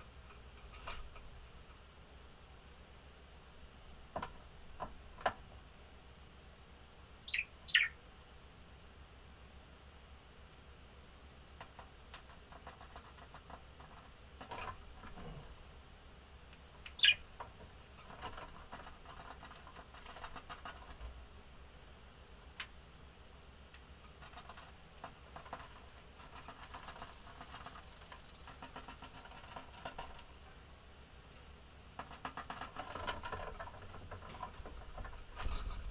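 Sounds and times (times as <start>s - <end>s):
birds scratching and tapping: 0.2s - 1.8s, 4.1s - 5.6s, 11.5s - 15.6s, 16.5s - 21.2s, 23.7s - 30.5s, 31.2s - 35.9s
budgie chirp: 7.3s - 8.0s, 16.9s - 17.3s.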